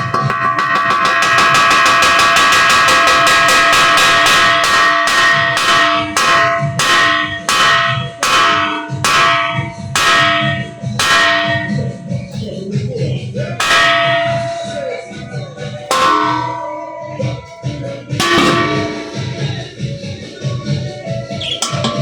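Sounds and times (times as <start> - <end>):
bells ringing in a peal: 13.6 - 19.6.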